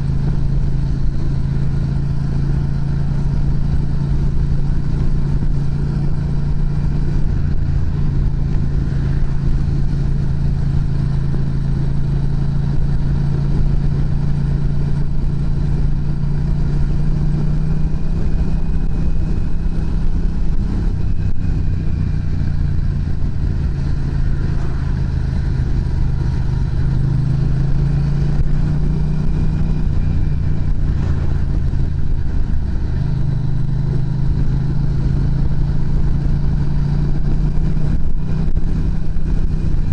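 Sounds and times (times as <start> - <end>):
motorcycle engine exhaust note: 0.0 - 39.9.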